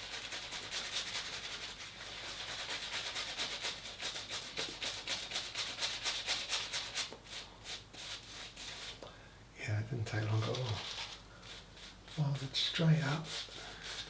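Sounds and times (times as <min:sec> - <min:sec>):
shaving brush wet swishing: 0:00.0 - 0:09.0.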